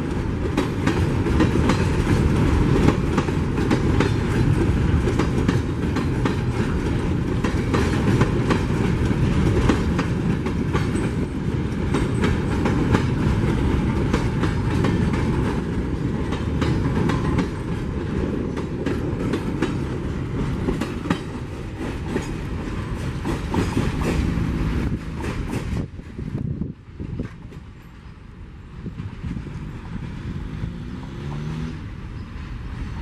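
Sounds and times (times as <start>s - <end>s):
train wheels clacking over rail joints: 0.0s - 28.1s
freight train rumble: 0.0s - 33.0s.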